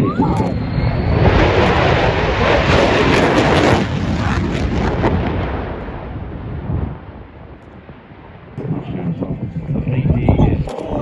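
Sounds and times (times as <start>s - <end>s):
loud crackling jet noise: 0.0s - 11.0s.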